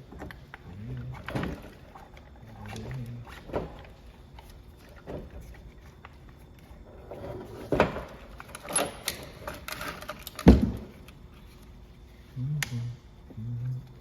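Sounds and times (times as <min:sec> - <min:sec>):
metal tools clacking and knocking: 0:07.1 - 0:10.7.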